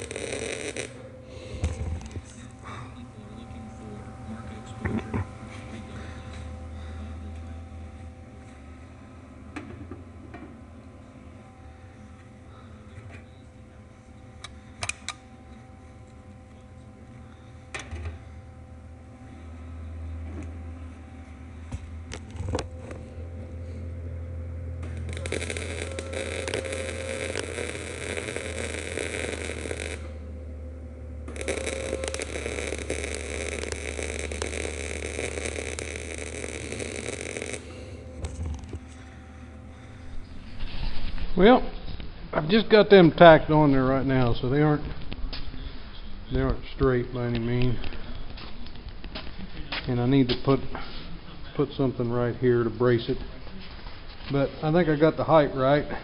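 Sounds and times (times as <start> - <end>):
welding arc crackling: 0.0 - 8.7, 24.8 - 43.3
cooling fan running: 0.0 - 56.0
welding machine humming: 0.0 - 56.0.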